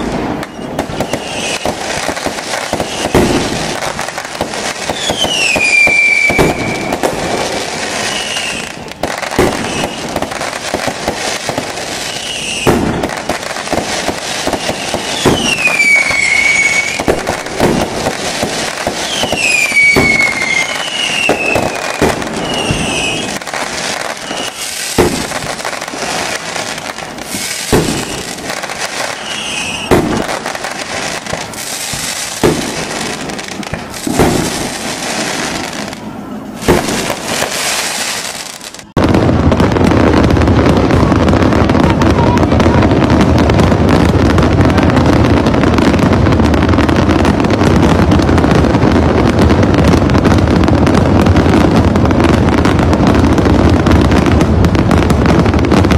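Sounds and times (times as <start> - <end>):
falling firework whistles: 0.0 - 44.4
fireworks bangs and crackling: 0.0 - 55.9.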